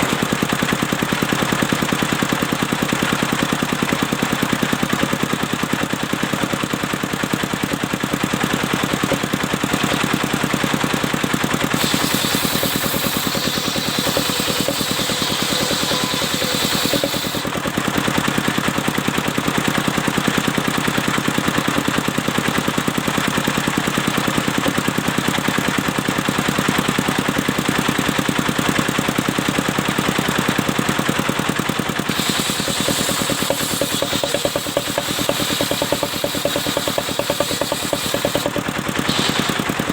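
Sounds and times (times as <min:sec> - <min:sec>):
engine running steadily: 0:00.0 - 0:39.9
saw blade cutting wood: 0:11.7 - 0:17.7, 0:32.1 - 0:39.9.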